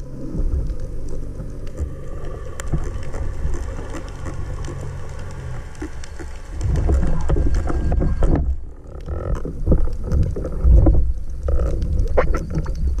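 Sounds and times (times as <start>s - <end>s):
crackles and bubble pops: 0.0s - 13.0s
muffled underwater water rumble: 0.0s - 13.0s.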